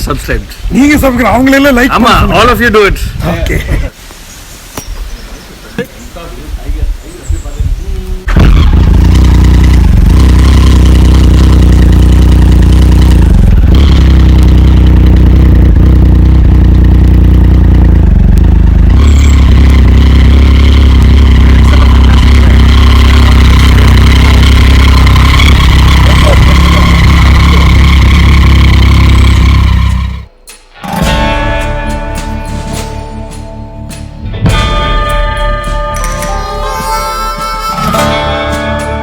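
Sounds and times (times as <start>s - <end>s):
motorcycle engine running: 8.3s - 30.3s.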